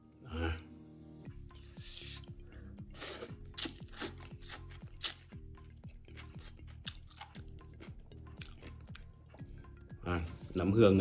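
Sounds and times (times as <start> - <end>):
background music with deep bass: 0.0 - 11.0
person chewing crunchy food: 2.0 - 9.8.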